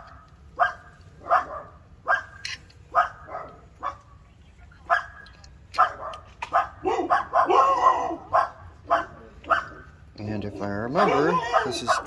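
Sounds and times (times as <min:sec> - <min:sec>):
dog yelping: 0:00.0 - 0:04.0, 0:05.8 - 0:10.0, 0:10.8 - 0:12.0
dog barking: 0:00.0 - 0:04.1, 0:04.9 - 0:05.2, 0:05.8 - 0:09.9, 0:10.9 - 0:12.0.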